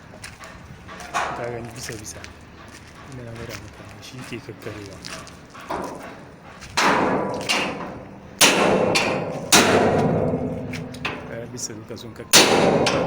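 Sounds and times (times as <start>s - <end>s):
ringing hammer blows on metal: 6.8s - 11.4s, 12.3s - 13.0s.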